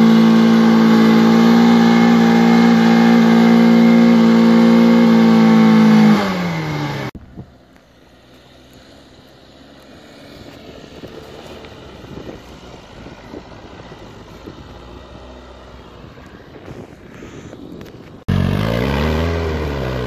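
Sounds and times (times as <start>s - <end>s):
car engine revving high: 0.0s - 7.2s, 18.3s - 20.0s
distant car engine: 0.0s - 20.0s.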